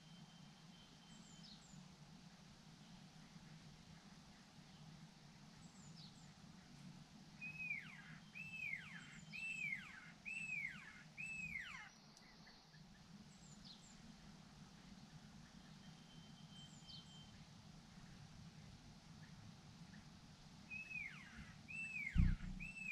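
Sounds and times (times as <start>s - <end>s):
faint high chirps: 0.0s - 1.8s, 7.4s - 12.7s, 15.5s - 17.5s, 20.7s - 22.9s
songbird calling: 7.4s - 13.8s, 20.7s - 22.9s.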